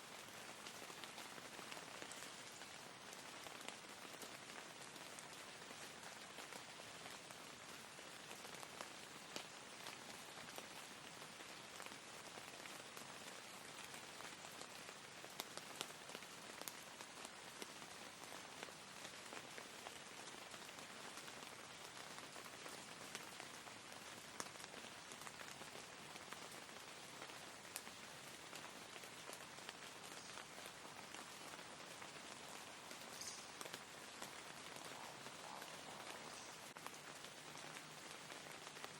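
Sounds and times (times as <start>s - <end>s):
steady rain hiss: 0.0s - 38.9s
raindrops tapping: 24.4s - 38.9s.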